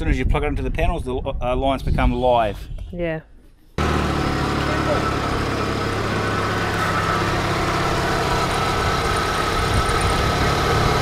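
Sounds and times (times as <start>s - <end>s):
engine running at low revs: 3.8s - 11.0s.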